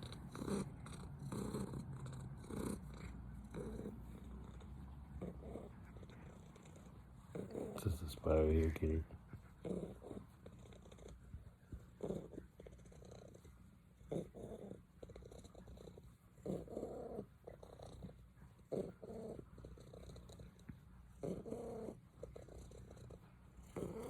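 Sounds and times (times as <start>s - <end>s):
cat purring: 0.0s - 24.0s.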